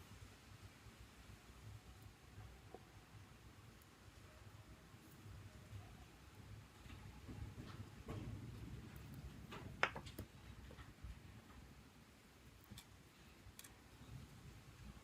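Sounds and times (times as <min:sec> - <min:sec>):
clicks and taps of tools: 0:09.5 - 0:10.9.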